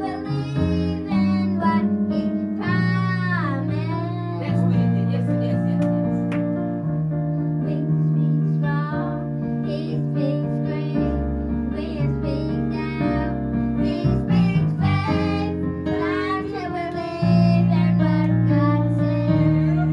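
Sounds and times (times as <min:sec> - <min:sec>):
held low bass notes: 0:01.2 - 0:07.5, 0:11.3 - 0:16.0, 0:17.0 - 0:19.9
keyboard and band accompaniment: 0:04.8 - 0:07.0
choir singing gospel: 0:14.0 - 0:19.9.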